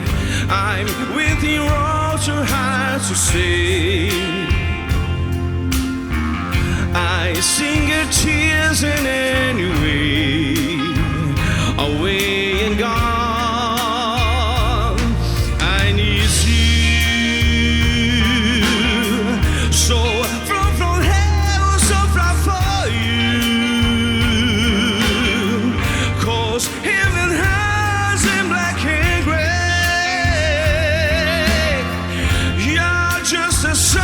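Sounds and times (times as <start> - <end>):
live rock band playing ballad: 0.0 - 34.0.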